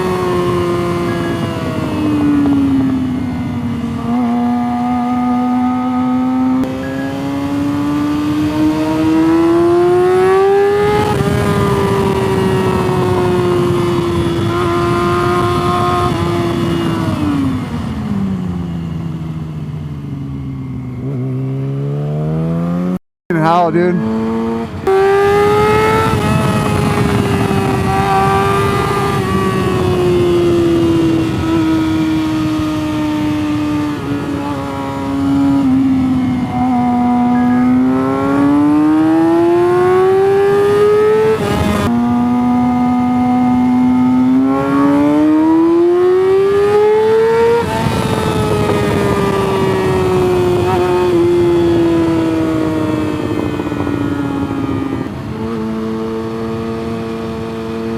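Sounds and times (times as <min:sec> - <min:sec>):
wind noise: 0:00.0 - 0:21.9, 0:24.0 - 0:57.9
motorcycle engine revving: 0:00.0 - 0:23.0, 0:23.8 - 0:57.9.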